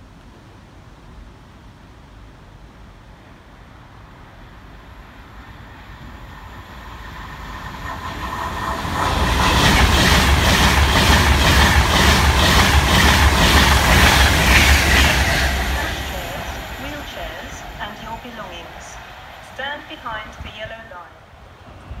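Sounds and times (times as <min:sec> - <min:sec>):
electric train passing: 0:03.8 - 0:22.0
wheel clickety-clack on track: 0:07.5 - 0:16.7.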